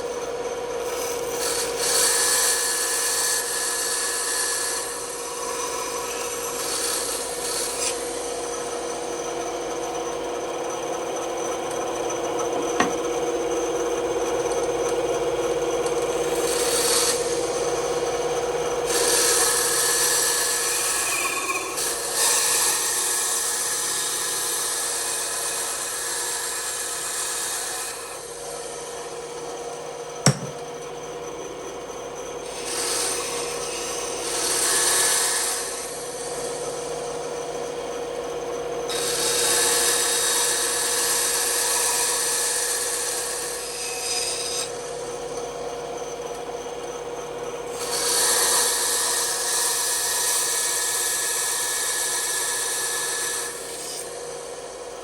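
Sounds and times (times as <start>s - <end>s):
bandsaw cutting wood: 0.8s - 13.4s, 15.8s - 29.2s, 32.4s - 36.7s, 38.9s - 44.8s, 47.7s - 54.9s.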